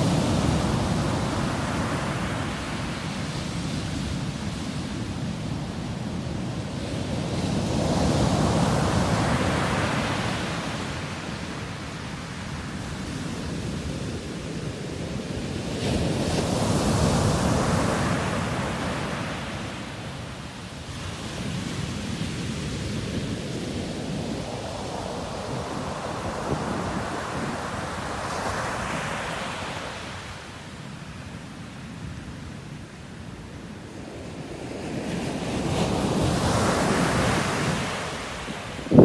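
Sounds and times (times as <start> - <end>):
waves breaking on shore: 0.0 - 32.4, 34.1 - 39.0.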